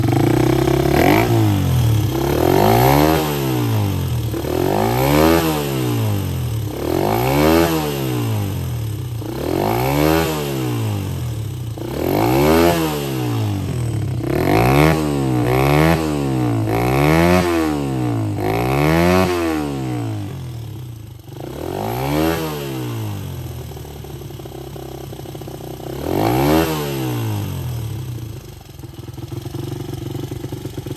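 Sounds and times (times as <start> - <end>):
minibike engine idling: 0.0 - 7.5, 8.2 - 9.9, 10.8 - 12.4, 13.3 - 18.8, 20.0 - 21.6, 23.1 - 26.2, 27.4 - 30.9
minibike engine revving: 0.0 - 30.9.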